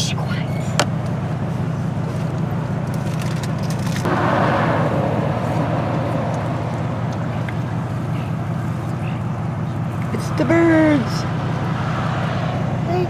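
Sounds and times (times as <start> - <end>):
vehicle engine idling: 0.0 - 13.0
rush of noise: 4.0 - 9.9.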